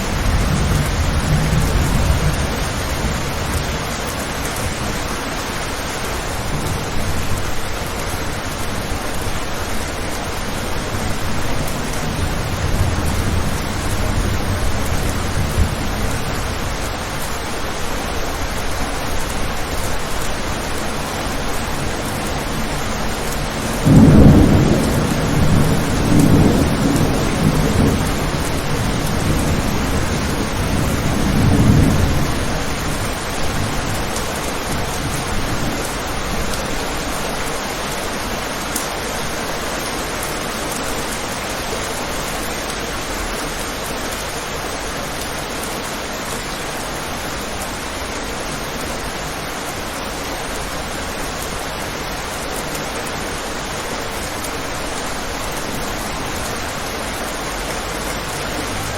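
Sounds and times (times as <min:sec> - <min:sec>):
thunder rumbling: 0:00.0 - 0:38.0
steady rain: 0:00.0 - 0:58.9.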